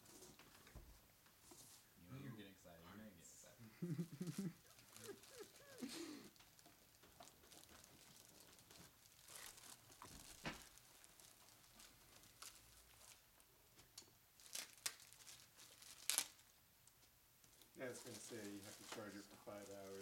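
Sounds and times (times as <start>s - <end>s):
packaging rustling and crinkling: 4.7s - 13.3s, 14.4s - 16.5s, 17.4s - 20.0s.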